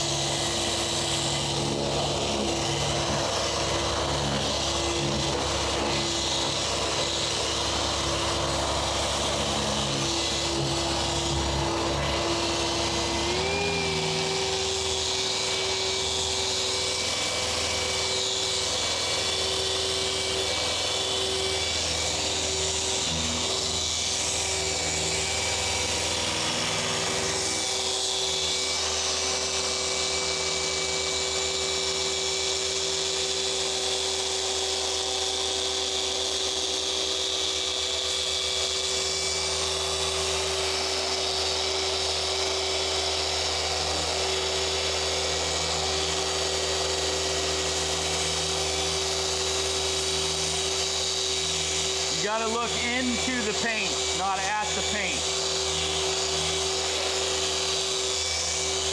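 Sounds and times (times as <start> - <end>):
polisher motor whine: 0.0 - 58.9.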